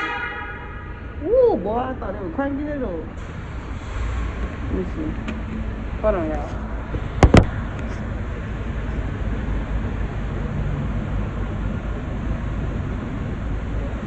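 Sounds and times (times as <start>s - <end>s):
low rumble of outdoor noise: 0.0s - 14.0s
sharp knocks: 7.0s - 7.6s.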